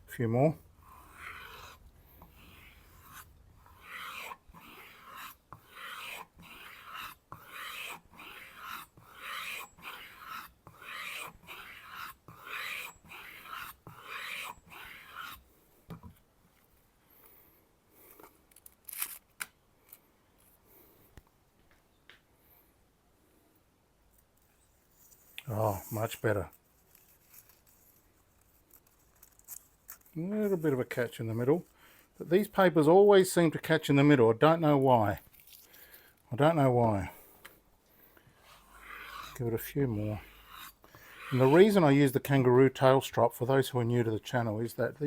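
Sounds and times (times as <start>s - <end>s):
knife stropping on leather: 0.8s - 15.4s, 24.6s - 30.9s, 38.4s - 42.1s.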